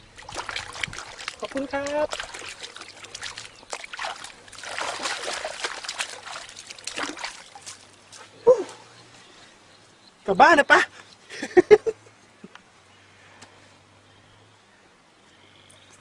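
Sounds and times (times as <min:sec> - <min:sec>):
water splashing and trickling: 0:00.0 - 0:09.0.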